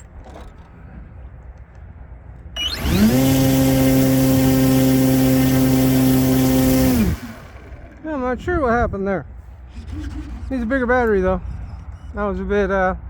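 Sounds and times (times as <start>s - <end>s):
electric model plane motor whine: 2.6s - 7.9s.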